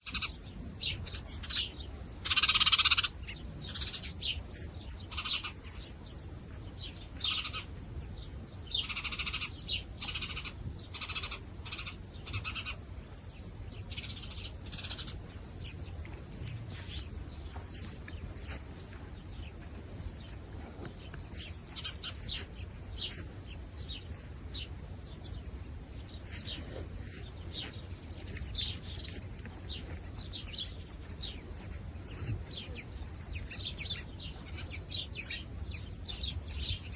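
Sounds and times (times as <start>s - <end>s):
low steady rumble: 0.0s - 36.9s
small birds chirping: 0.0s - 36.9s.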